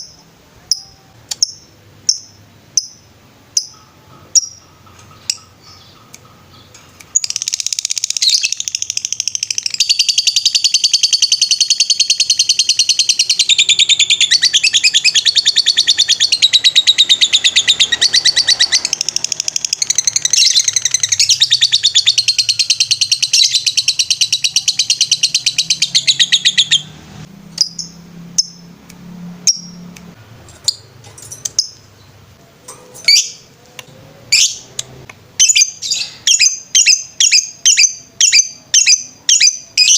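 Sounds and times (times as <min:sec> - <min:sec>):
lovebird chattering trills: 0:00.7 - 0:26.9.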